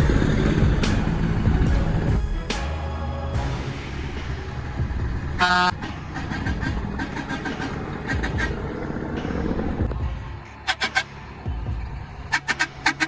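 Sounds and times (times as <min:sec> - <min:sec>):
truck horn blast: 0:00.0 - 0:05.8
truck engine rumbling: 0:00.0 - 0:13.0.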